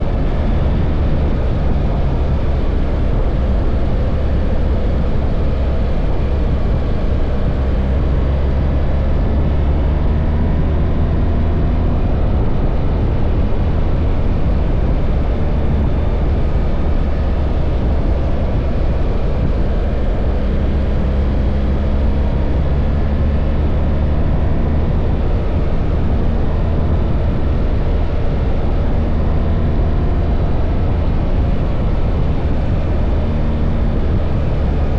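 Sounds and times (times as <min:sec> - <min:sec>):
wind and road noise: 0:00.0 - 0:34.9.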